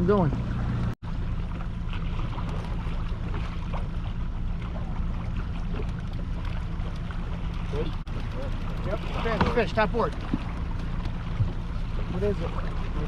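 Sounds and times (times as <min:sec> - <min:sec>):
outboard motor humming: 0:00.0 - 0:13.0
water noise: 0:00.0 - 0:13.0
wind: 0:00.0 - 0:13.0.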